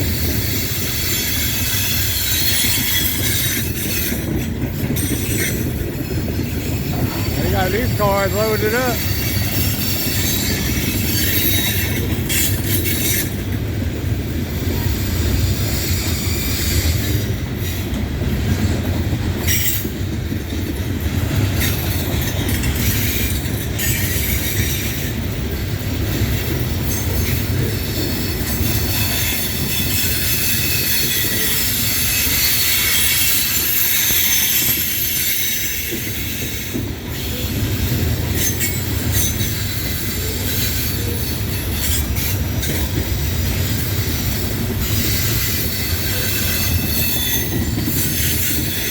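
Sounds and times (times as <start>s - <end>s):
steel wheels rumbling on rail: 0.0s - 48.9s
high-pitched wheel squeal: 28.8s - 36.6s, 44.9s - 48.9s.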